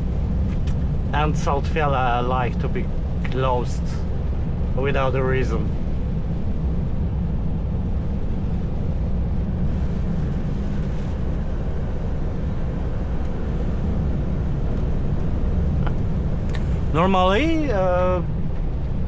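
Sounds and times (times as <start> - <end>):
truck diesel engine droning: 9.6 - 18.3.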